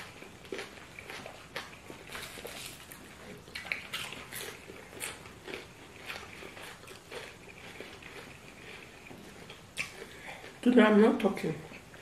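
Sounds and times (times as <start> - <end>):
wet chewing and lip smacks: 0.0 - 10.6.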